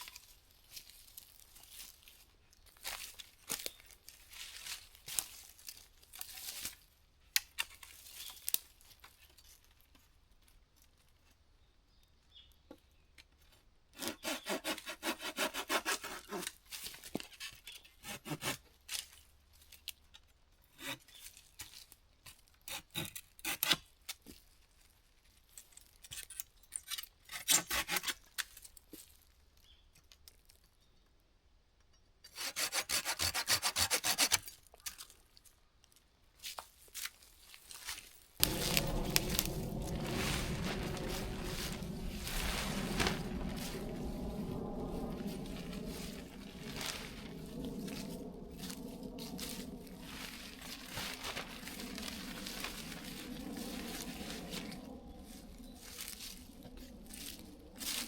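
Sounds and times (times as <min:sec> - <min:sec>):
hand saw cutting wood: 0:14.0 - 0:16.6, 0:17.3 - 0:18.7, 0:22.6 - 0:23.9, 0:27.3 - 0:28.2, 0:32.3 - 0:34.6.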